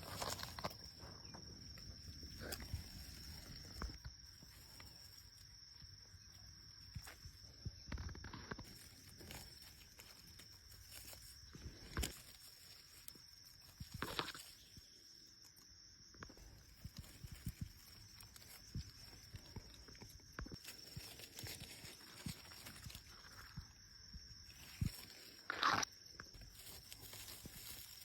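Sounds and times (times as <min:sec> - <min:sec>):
twigs snapping: 0:00.0 - 0:05.7, 0:06.3 - 0:14.8, 0:15.4 - 0:23.7
footsteps in leaf litter: 0:26.4 - 0:28.0.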